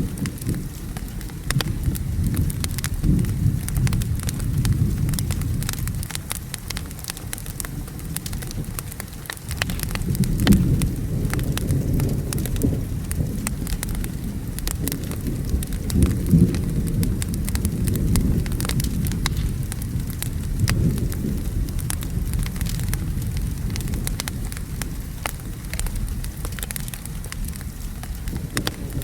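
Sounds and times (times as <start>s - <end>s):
low rolling thunder: 0.0s - 29.0s
steady rain: 0.0s - 29.0s
wood fire crackling: 0.0s - 29.0s.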